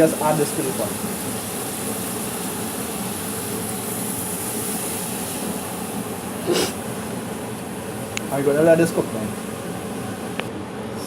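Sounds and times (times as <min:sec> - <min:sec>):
sauce sizzling in a pot: 0:00.0 - 0:10.5.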